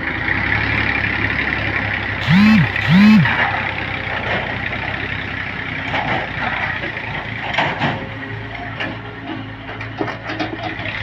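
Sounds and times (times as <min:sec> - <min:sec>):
short loud rising tones: 0:02.2 - 0:03.4
tractor engine running: 0:02.2 - 0:03.4.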